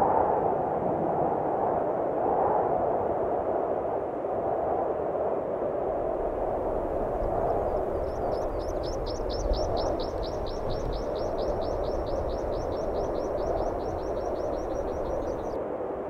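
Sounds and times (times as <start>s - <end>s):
steady rushing noise: 5.9s - 16.0s
small bird trilling: 6.7s - 15.6s.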